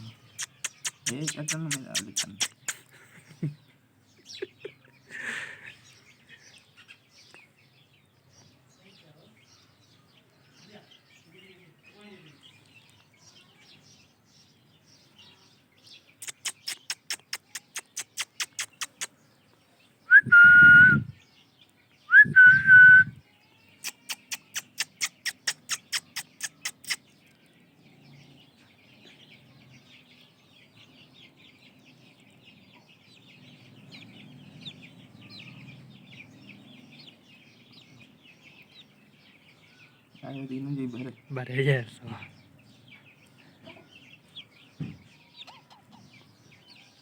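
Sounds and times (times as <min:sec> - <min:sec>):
loud whistles: 0:20.1 - 0:21.1, 0:22.1 - 0:23.2.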